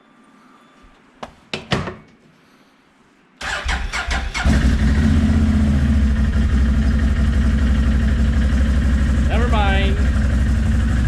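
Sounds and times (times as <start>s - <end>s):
vehicle engine cranking and idling: 3.4s - 11.0s.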